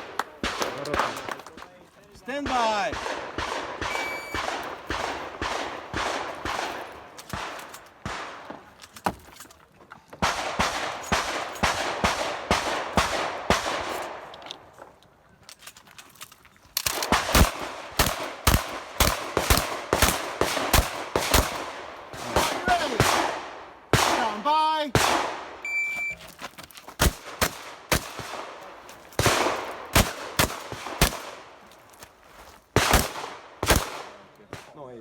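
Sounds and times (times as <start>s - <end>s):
shotgun firing rapidly: 2.4s - 6.8s, 17.1s - 25.4s.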